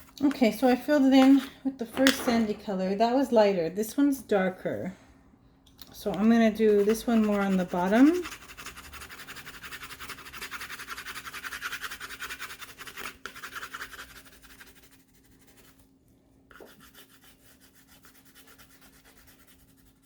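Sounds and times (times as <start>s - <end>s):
pencil scratching on paper: 6.2s - 15.8s, 16.5s - 20.0s.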